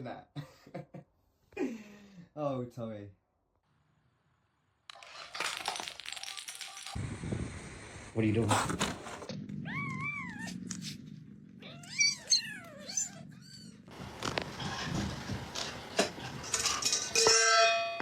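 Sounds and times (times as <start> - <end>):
cat meowing and yowling: 9.6 - 10.9, 11.6 - 13.9.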